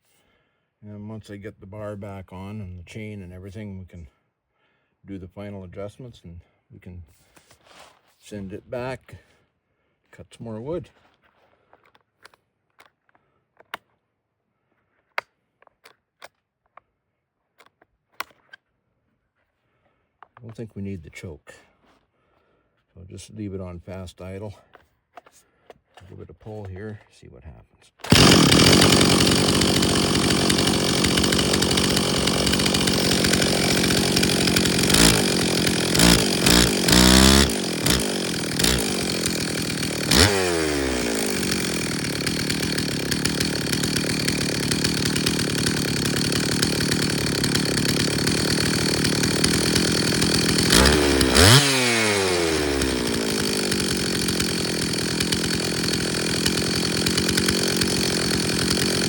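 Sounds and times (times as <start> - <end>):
chainsaw engine idling and revving: 28.0 - 59.0.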